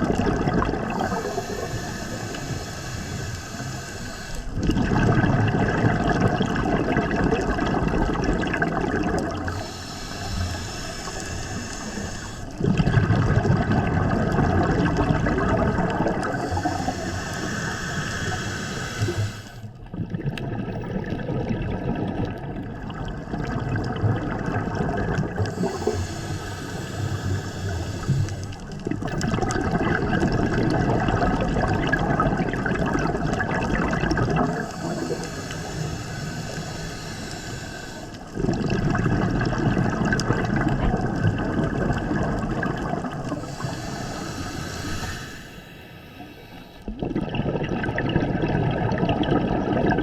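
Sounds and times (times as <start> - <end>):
exhaled air bubbling: 0.0 - 50.0
regulator inhale hiss: 0.4 - 4.6, 9.4 - 12.6, 16.1 - 19.7, 25.4 - 28.8, 34.4 - 38.4, 43.2 - 47.0.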